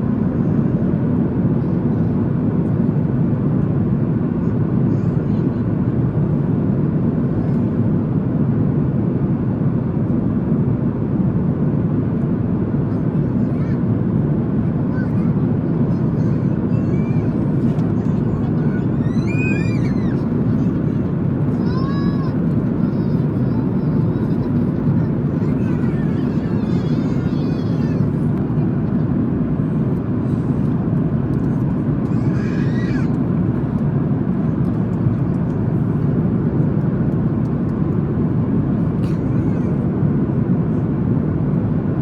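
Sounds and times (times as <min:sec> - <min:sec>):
airplane cabin airflow and engine: 0:00.0 - 0:42.0
faint voices: 0:14.7 - 0:36.0.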